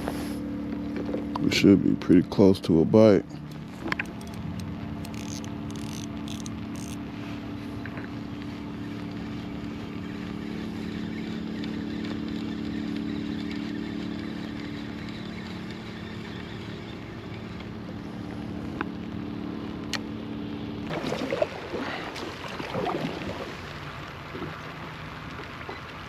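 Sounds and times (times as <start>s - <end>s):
water noise: 3.2s - 7.1s, 20.8s - 26.0s
boat motor humming: 3.2s - 26.0s.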